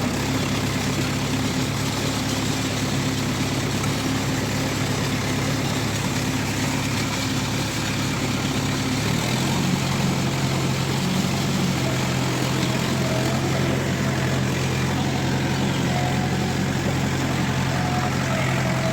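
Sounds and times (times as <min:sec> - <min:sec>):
tractor diesel engine under load: 0:00.0 - 0:18.9.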